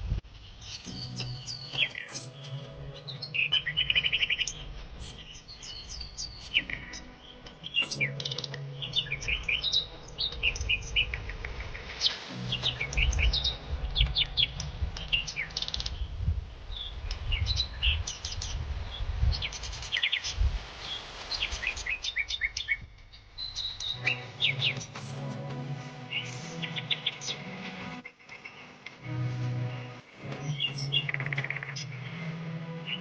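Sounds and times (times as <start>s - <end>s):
small birds chirping and singing: 0.4s - 28.7s, 30.2s - 33.0s
low uneven rumble: 8.6s - 19.3s.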